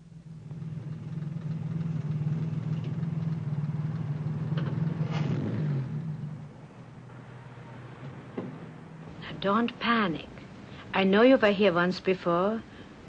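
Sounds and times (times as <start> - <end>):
car engine running: 0.0 - 9.5.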